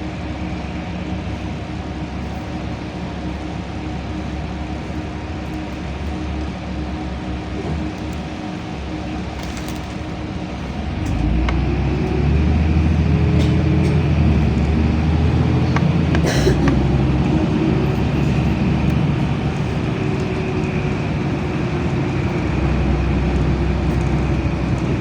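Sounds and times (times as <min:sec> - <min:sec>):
bus engine running: 0:00.0 - 0:25.0
interior rattles and clicks: 0:13.2 - 0:25.0.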